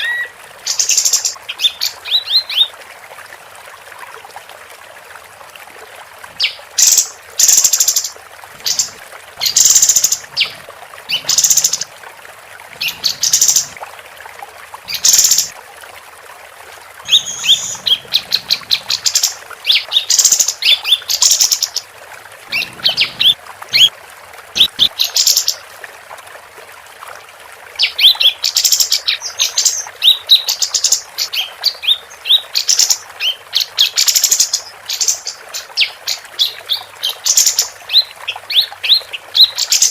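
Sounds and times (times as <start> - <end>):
songbird singing: 12.8 - 13.8, 17.0 - 21.8, 22.5 - 23.9.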